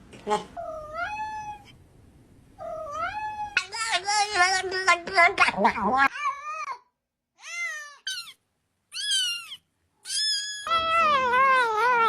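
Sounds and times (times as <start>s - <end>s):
cat meowing: 2.6s - 3.7s, 7.4s - 12.0s.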